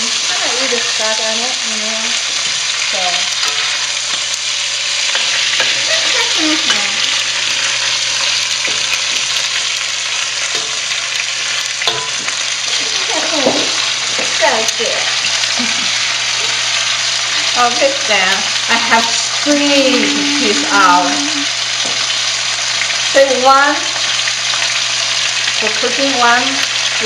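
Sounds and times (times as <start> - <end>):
chicken sizzling in hot oil: 0.0 - 27.0
metal spatula scraping a wok: 3.3 - 4.3, 5.0 - 15.5.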